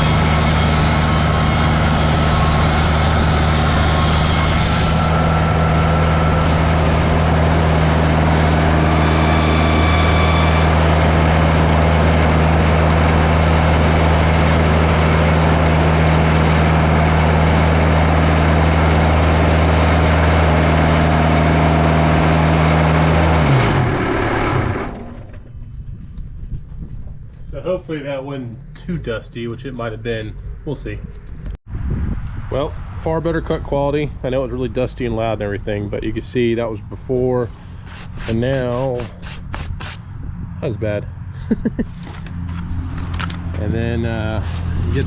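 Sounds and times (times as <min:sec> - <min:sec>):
sawmill engine running: 0:00.0 - 0:25.7, 0:36.8 - 0:40.1, 0:41.9 - 0:45.0
band blade hissing through wood: 0:37.6 - 0:40.1.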